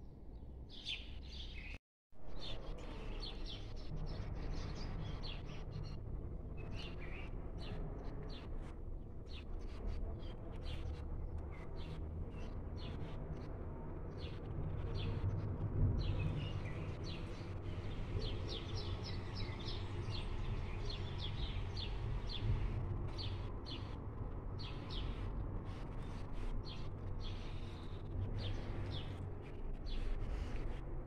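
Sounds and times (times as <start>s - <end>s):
small birds chirping: 16.0s - 24.0s.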